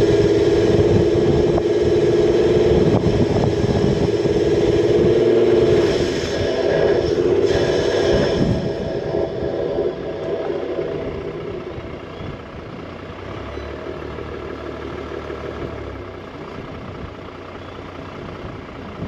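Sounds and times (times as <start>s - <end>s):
four-wheel drive engine running: 0.0s - 19.0s.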